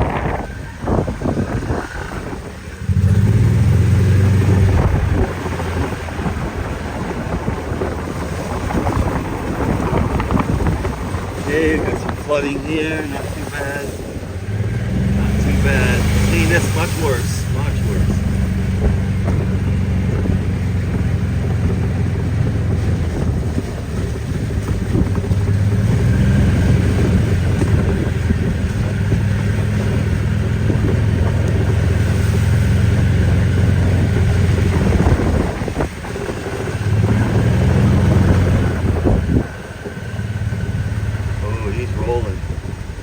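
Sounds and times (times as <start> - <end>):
engine running: 0.0 - 43.0
wind buffeting microphone: 0.0 - 43.0.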